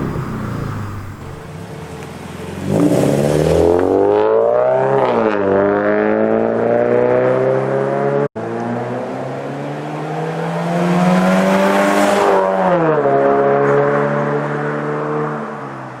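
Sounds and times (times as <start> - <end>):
car exhaust revving hard: 0.0 - 1.5.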